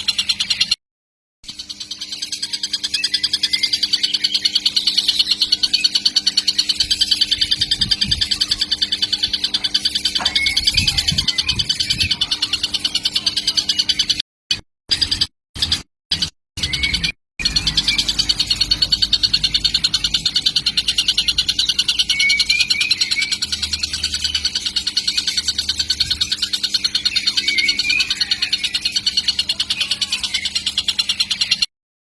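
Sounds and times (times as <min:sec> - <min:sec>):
lower chirps: 0:01.5 - 0:14.2, 0:16.6 - 0:31.7
kingfisher chick calling: 0:01.8 - 0:14.2, 0:16.6 - 0:31.7.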